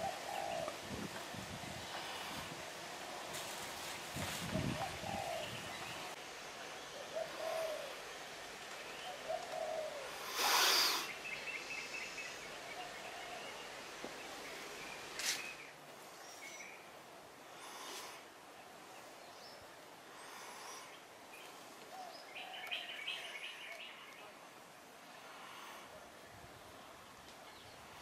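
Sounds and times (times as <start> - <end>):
birds cooing: 0.0 - 2.5, 4.5 - 6.2, 6.8 - 13.8, 20.2 - 24.2.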